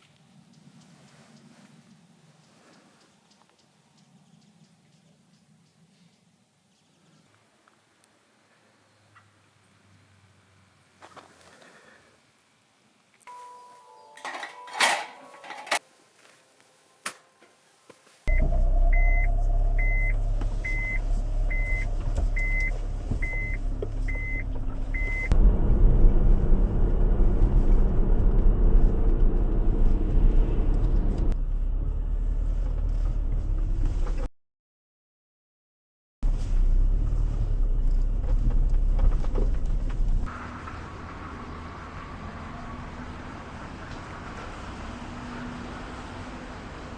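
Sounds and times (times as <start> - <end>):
short beeps: 18.3 - 25.3
car engine rumbling: 18.3 - 34.3, 36.2 - 46.9.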